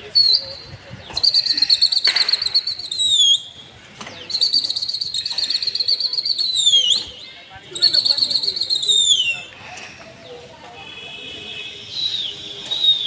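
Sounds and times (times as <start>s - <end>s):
long trilled whistles: 1.2s - 3.6s, 4.3s - 7.1s, 7.8s - 9.5s, 11.9s - 13.0s.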